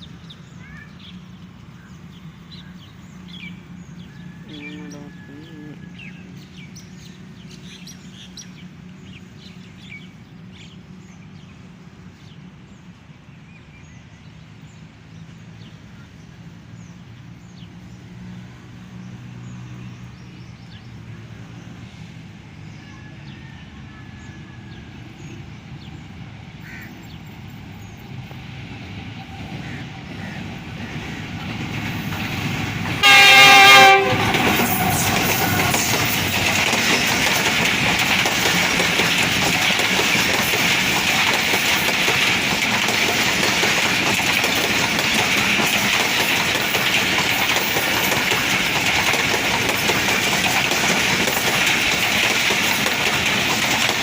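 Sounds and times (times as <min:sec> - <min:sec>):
birds chirping: 0:00.0 - 0:18.0
diesel locomotive rumble: 0:00.0 - 0:54.0
loud locomotive horn blast: 0:32.9 - 0:36.0.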